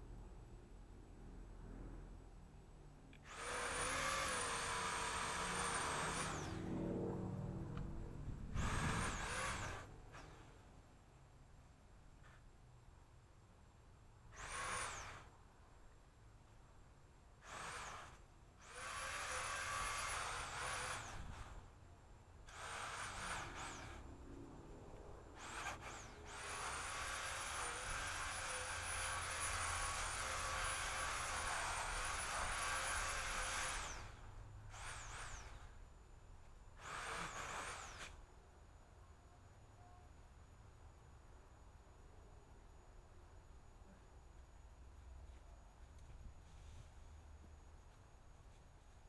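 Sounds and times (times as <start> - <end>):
chainsaw cutting branches: 3.2 - 6.6, 8.5 - 10.5, 14.3 - 15.3, 17.4 - 21.7, 22.4 - 24.1, 25.3 - 35.8, 36.8 - 38.2.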